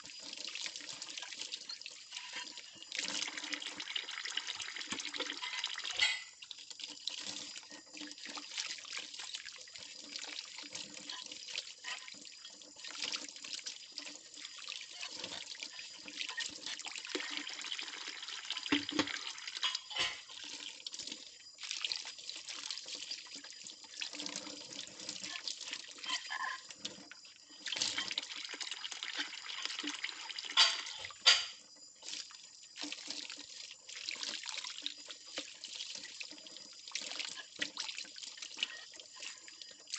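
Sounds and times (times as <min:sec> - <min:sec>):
running tap water splashing: 0:00.0 - 0:39.9
plates clinking and knocking: 0:06.0 - 0:06.3, 0:19.6 - 0:20.2, 0:30.6 - 0:31.6.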